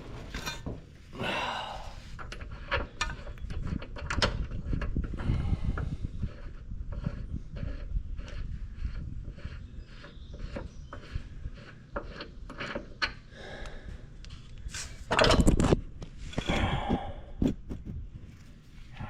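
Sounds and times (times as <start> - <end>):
metal scraping rattle: 0.0 - 1.1, 2.0 - 13.3, 14.7 - 16.9
tool handling clicks and knocks: 14.2 - 17.8.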